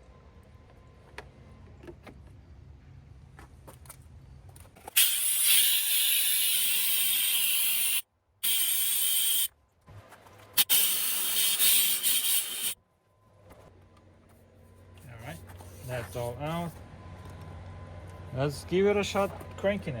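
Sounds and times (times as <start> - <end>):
compressed air hissing: 5.0 - 9.5, 10.6 - 12.8.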